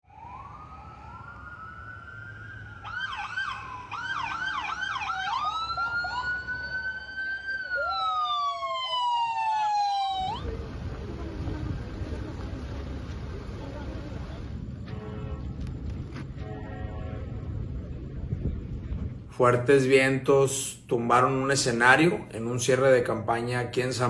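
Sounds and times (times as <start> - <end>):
second siren: 0.0 - 10.6
emergency vehicle siren: 0.0 - 14.5.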